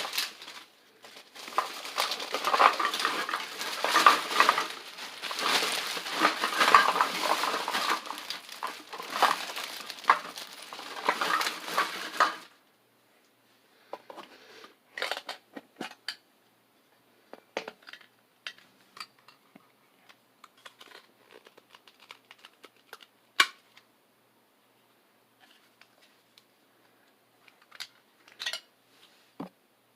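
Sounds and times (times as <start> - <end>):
packaging crinkling and tearing: 0.0 - 12.5, 20.6 - 23.1.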